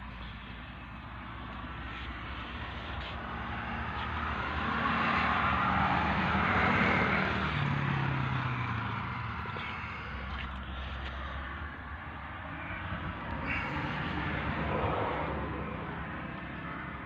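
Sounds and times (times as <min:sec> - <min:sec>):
vehicle passing by: 0:01.3 - 0:17.0.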